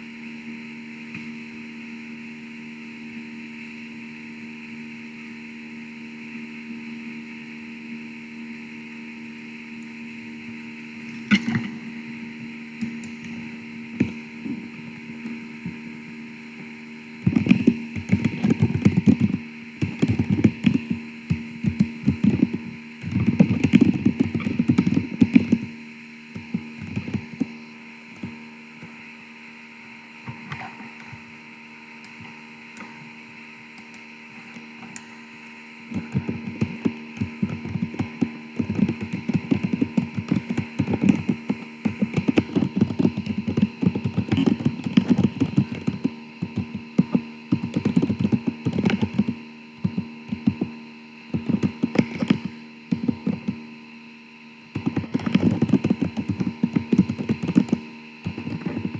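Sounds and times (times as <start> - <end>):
electrical hum and hiss: 0.0 - 58.9
microphone crackling and thumping: 17.2 - 25.7, 36.0 - 50.8, 54.8 - 58.9.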